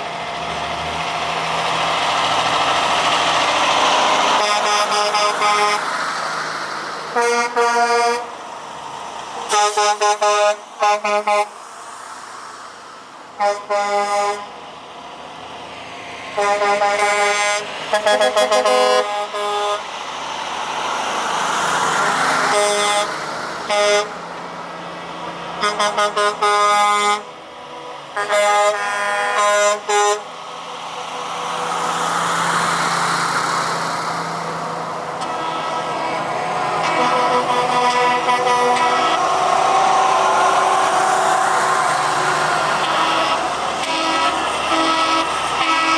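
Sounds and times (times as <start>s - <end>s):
trucks driving past: 0.0s - 45.9s
truck air horn blasts: 4.3s - 5.9s, 7.1s - 8.4s, 9.5s - 11.6s, 13.4s - 14.6s, 16.4s - 20.0s, 22.4s - 24.2s, 25.6s - 27.3s, 28.2s - 30.4s, 34.6s - 45.9s.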